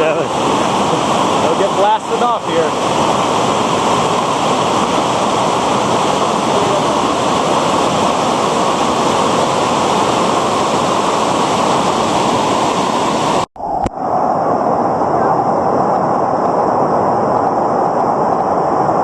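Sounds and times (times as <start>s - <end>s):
river rapids rushing: 0.0s - 13.5s.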